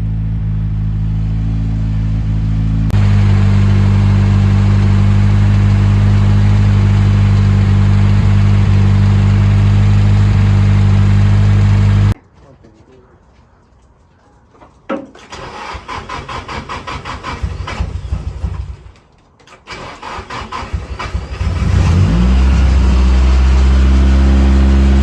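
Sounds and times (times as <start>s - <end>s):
car engine idling: 0.0s - 12.2s, 20.0s - 25.0s.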